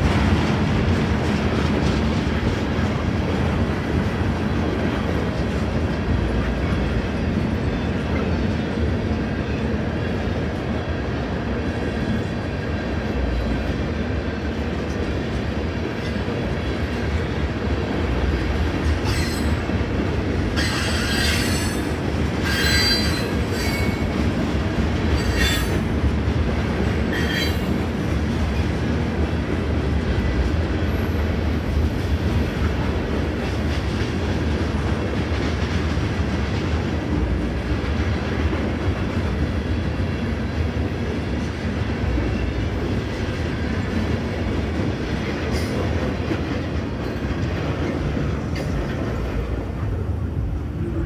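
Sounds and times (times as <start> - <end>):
train wheels rumbling on rail: 0.0 - 51.0
wheel squeals: 22.4 - 24.0.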